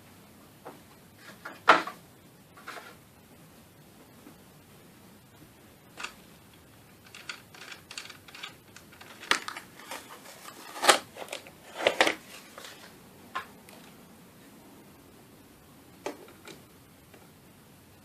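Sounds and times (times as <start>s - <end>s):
small tools clicking and knocking: 7.0s - 10.0s.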